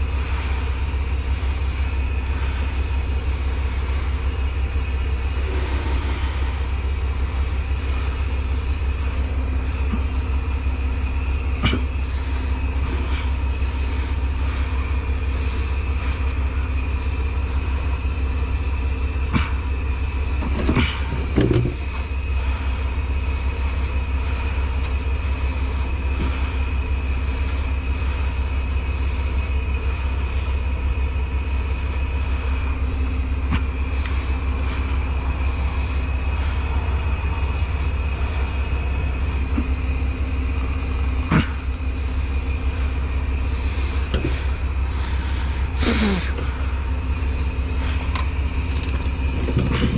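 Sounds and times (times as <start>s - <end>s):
heavy truck engine rumbling: 0.0s - 49.9s
knocks and rattles: 20.4s - 22.0s, 48.0s - 49.9s.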